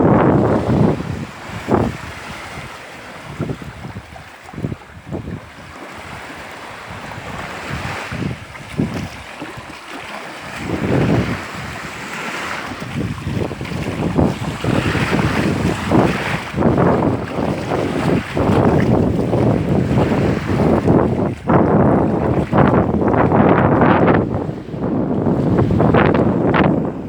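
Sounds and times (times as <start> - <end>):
waves washing on a shore: 0.0 - 27.0
wind buffeting the microphone: 0.0 - 27.0.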